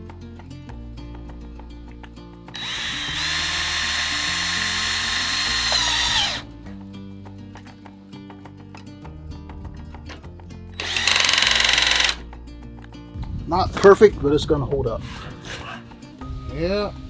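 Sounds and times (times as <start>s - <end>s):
background music: 0.0s - 17.0s
power drill whine: 2.6s - 6.4s, 10.8s - 12.2s.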